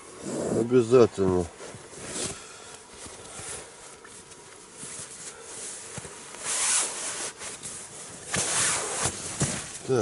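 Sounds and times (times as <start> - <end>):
fabric rustling: 4.8 - 10.0
zipper rasps: 8.3 - 9.2.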